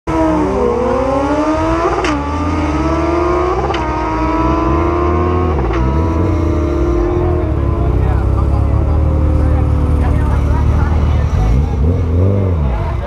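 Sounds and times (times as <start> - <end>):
engine accelerating through gears: 0.1 - 13.0.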